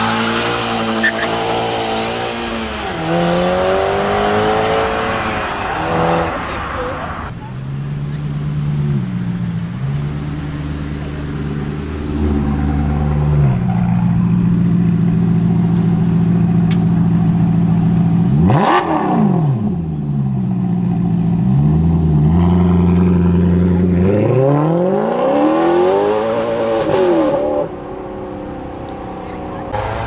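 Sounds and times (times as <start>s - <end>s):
car engine idling: 2.6s - 18.4s, 27.7s - 30.0s
engine quick rev: 29.7s - 30.0s.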